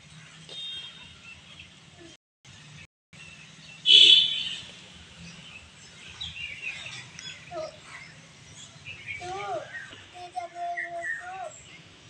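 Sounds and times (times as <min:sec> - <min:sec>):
bird calls and chirps: 0:02.6 - 0:12.0.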